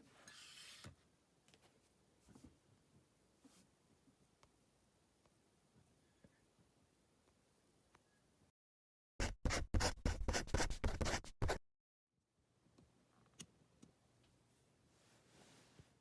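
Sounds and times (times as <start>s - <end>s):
pen scratching on paper: 9.2s - 11.6s.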